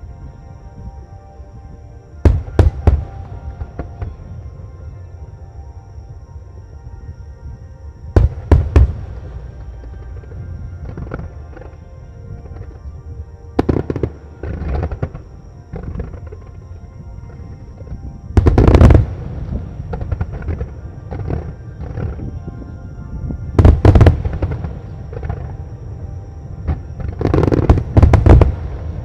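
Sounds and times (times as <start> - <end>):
music: 0.0 - 29.0.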